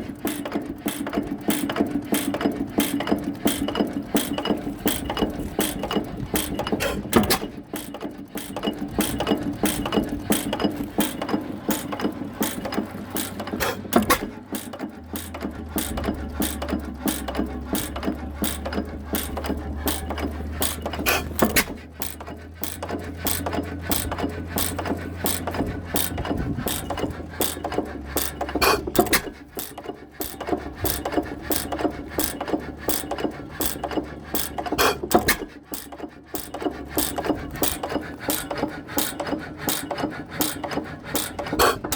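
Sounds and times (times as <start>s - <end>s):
engine mechanism clicking: 0.0s - 41.9s
heavy engine knock: 0.0s - 41.9s.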